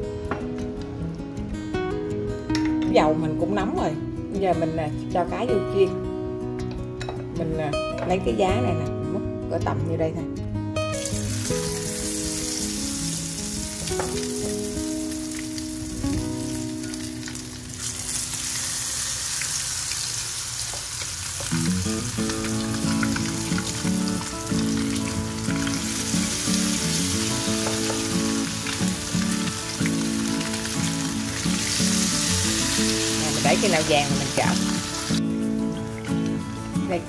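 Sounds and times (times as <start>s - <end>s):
background music: 0.0s - 18.9s, 21.4s - 37.0s
batter deep-frying in hot oil: 11.0s - 35.2s.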